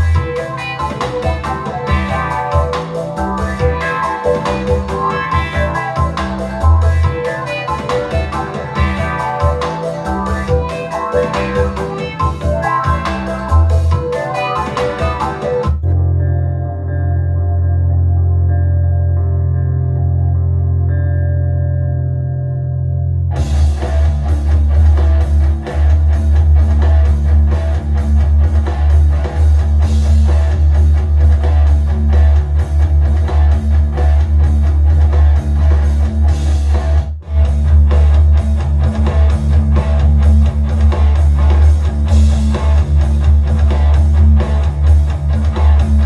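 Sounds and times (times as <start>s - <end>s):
rock music from speaker: 0.0s - 46.0s.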